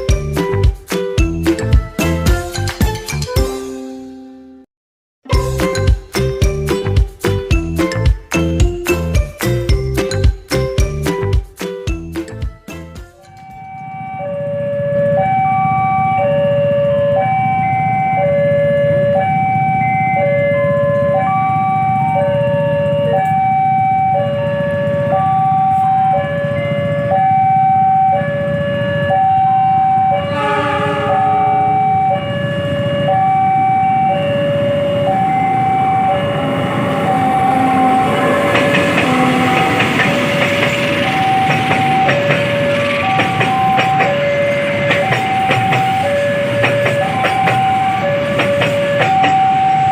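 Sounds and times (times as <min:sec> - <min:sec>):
train rolling and wheel clatter: 0:05.4 - 0:49.9
level crossing alarm: 0:13.2 - 0:49.9
horn blast: 0:30.2 - 0:32.6, 0:37.3 - 0:40.2.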